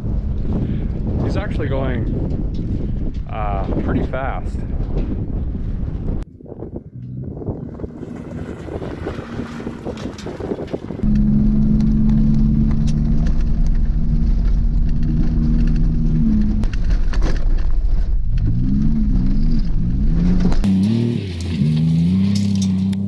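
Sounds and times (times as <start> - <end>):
race car engine at high revs: 7.2 - 16.7.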